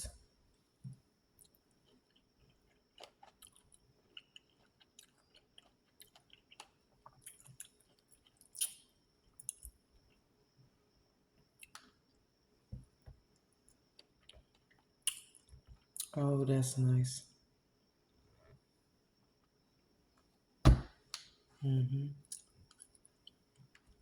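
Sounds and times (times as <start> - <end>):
person chewing fruit: 1.4 - 8.8, 9.4 - 9.8
wet mouth clicks and smacks: 15.1 - 15.4.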